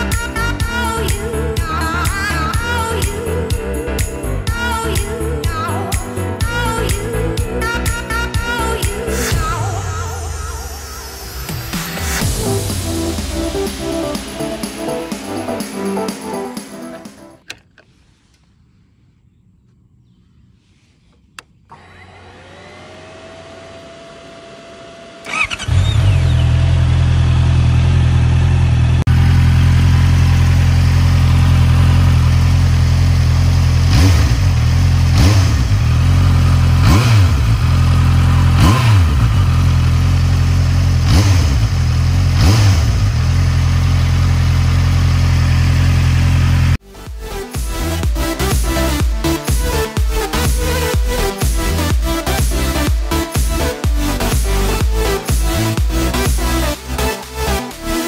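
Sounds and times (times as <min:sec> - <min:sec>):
motorcycle engine idling and revving: 0:00.0 - 0:16.7, 0:21.4 - 0:58.0
ignition click: 0:17.4 - 0:17.9.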